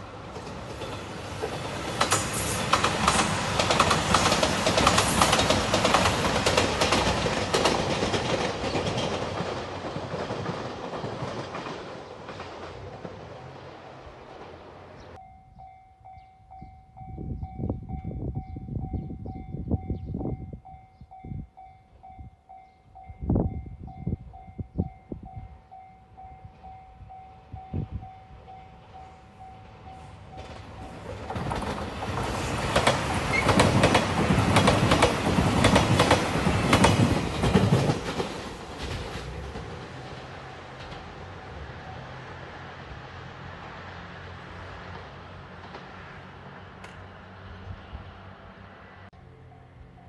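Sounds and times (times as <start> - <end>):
wheels clacking over rail joints: 0.0 - 15.2, 29.7 - 42.4
diesel train passing: 0.0 - 50.0.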